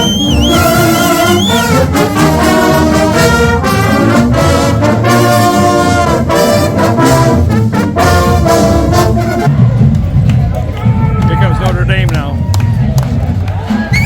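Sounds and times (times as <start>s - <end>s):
marching band playing: 0.0s - 14.0s
brass chord phrases: 0.4s - 9.8s.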